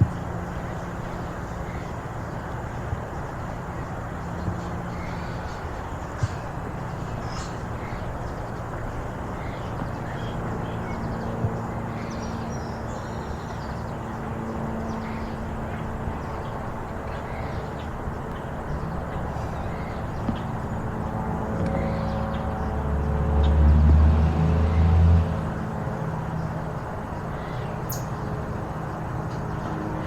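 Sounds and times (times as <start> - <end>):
distant engines humming: 0.0 - 30.0
small birds chirping: 27.2 - 29.8.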